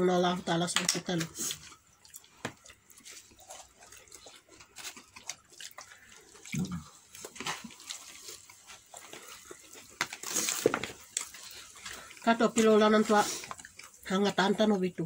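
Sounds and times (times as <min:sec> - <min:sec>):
wet chewing and mouth sounds: 0:00.7 - 0:14.7
crisp crackle: 0:00.8 - 0:14.4.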